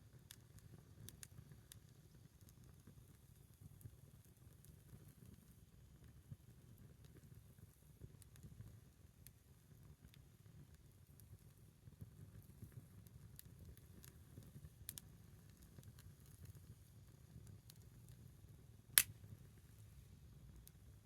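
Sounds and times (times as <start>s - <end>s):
wood fire crackling: 10.2s - 20.9s.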